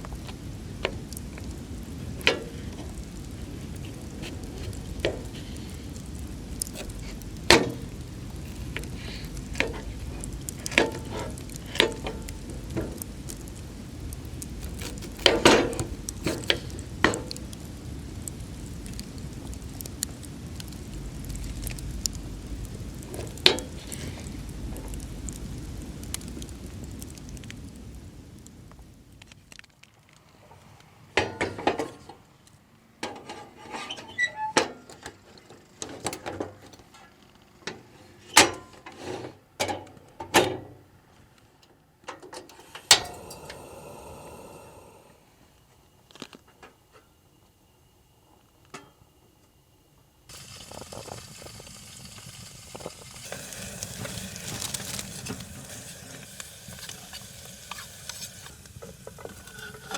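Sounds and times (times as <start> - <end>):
food sizzling in a pan: 0.0 - 26.9, 42.6 - 45.0, 50.3 - 59.9.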